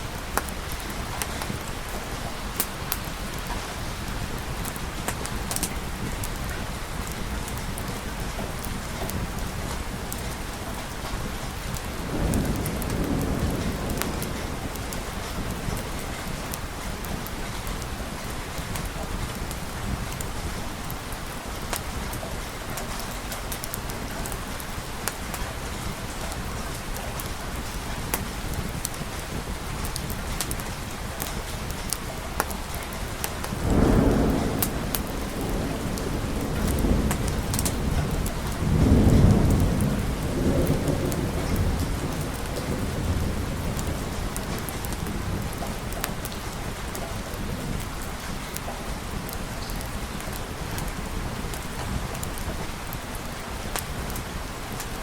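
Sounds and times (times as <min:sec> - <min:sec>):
steady rain: 0:00.0 - 0:55.0
thunder rumbling: 0:00.0 - 0:55.0
sharp ticks and pops: 0:00.2 - 0:01.6, 0:04.6 - 0:09.2, 0:29.8 - 0:39.8.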